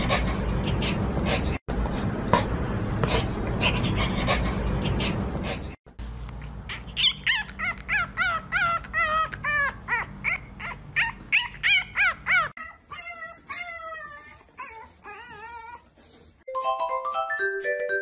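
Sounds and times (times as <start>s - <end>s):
puppy yipping: 6.7s - 15.9s.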